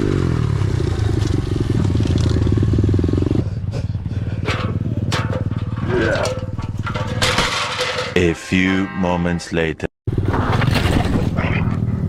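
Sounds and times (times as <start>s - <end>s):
dirt bike engine running: 0.0s - 8.2s
sharp clattering knocks: 4.4s - 8.3s.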